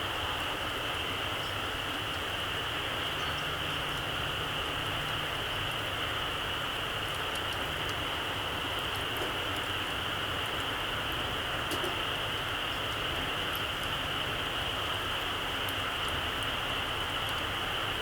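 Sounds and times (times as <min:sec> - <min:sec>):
campfire crackling: 0:00.0 - 0:18.0.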